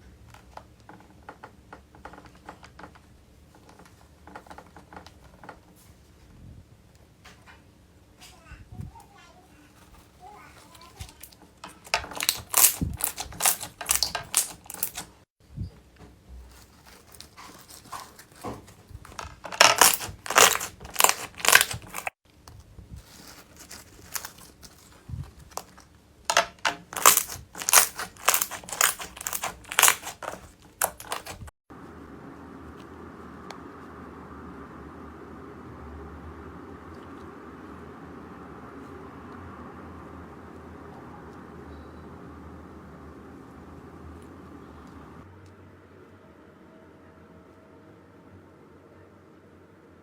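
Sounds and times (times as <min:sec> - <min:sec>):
slime crackling and popping: 0:11.0 - 0:15.1, 0:19.1 - 0:22.2, 0:23.1 - 0:25.7, 0:26.8 - 0:31.5.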